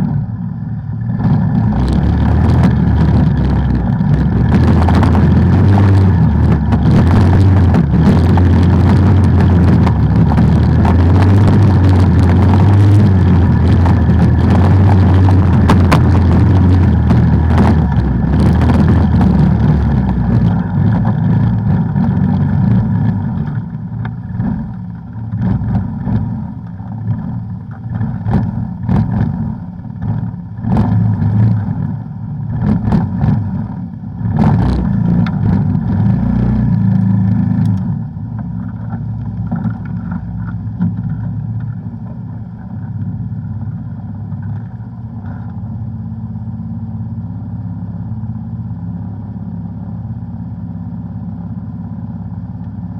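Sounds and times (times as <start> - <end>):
off-road vehicle engine running: 0.0 - 52.9
sharp knocks and clatter: 2.2 - 24.8, 38.4 - 43.1.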